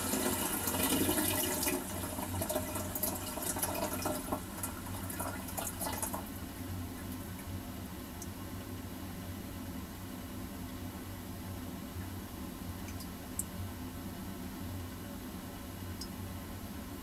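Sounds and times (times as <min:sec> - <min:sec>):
toilet refilling with water: 0:00.0 - 0:06.4
faint steady hum: 0:00.0 - 0:17.0.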